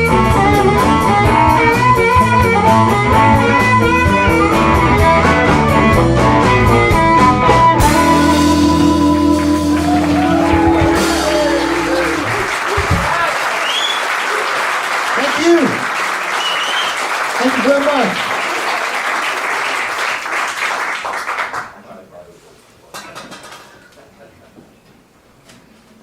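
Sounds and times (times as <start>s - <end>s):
live blues band playing: 0.0s - 13.3s
audience applause: 8.6s - 21.8s.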